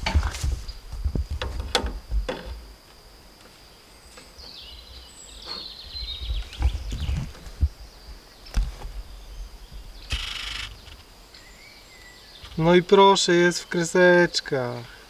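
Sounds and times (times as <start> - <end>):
songbird twittering: 3.6 - 14.2.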